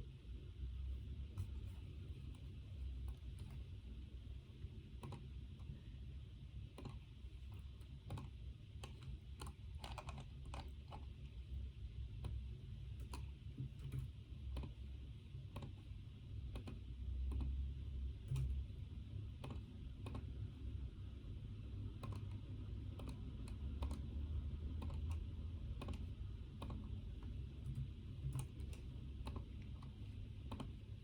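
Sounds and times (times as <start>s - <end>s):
steady low hum: 0.0s - 31.0s
computer keyboard typing: 4.8s - 5.6s, 6.7s - 11.2s, 16.4s - 17.6s, 19.3s - 20.4s, 21.9s - 31.0s.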